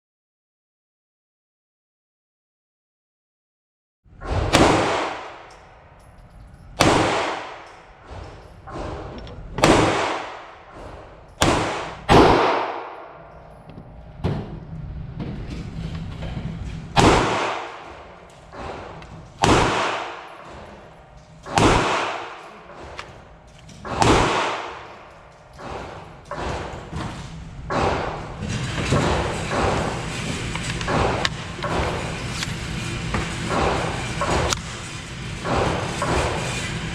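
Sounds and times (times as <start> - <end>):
pistol shots with echo: 4.4 - 5.6, 6.8 - 7.8, 9.6 - 10.7, 11.4 - 13.3, 17.0 - 20.4, 21.5 - 22.8, 23.8 - 26.0.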